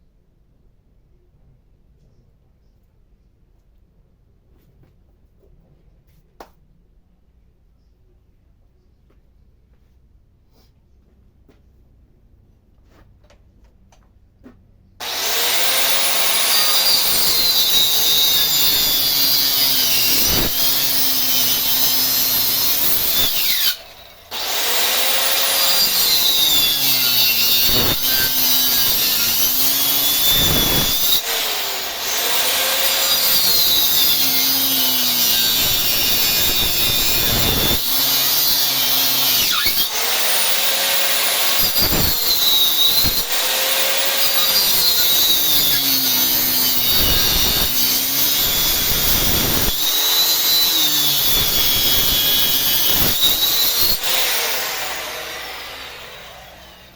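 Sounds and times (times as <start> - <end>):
power tool cutting wood: 15.0 - 56.9.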